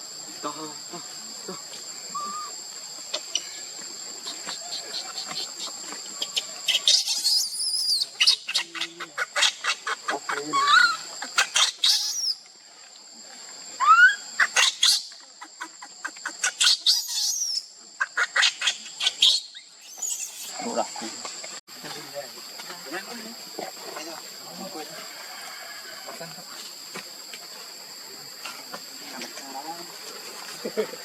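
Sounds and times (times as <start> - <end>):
insects droning: 0.0 - 31.0
short chirping calls: 18.4 - 20.6.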